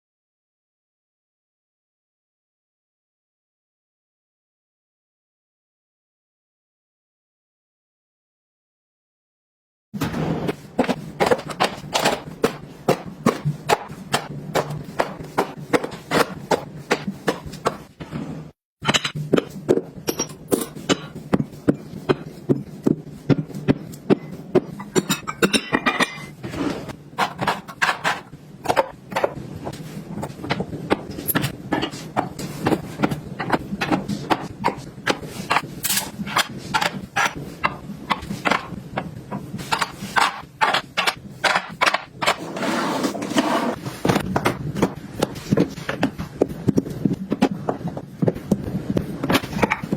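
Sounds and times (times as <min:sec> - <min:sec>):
objects clicking and knocking: 0:10.0 - 0:49.9.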